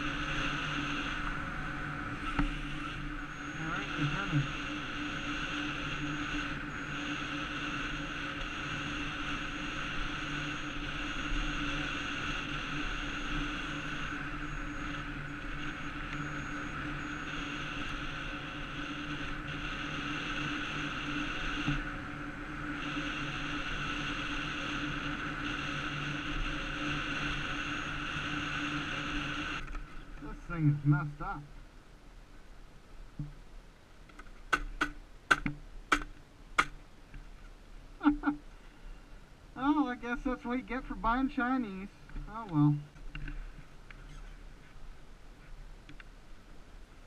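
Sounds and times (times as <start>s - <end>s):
electric motor hum: 0.0s - 31.4s.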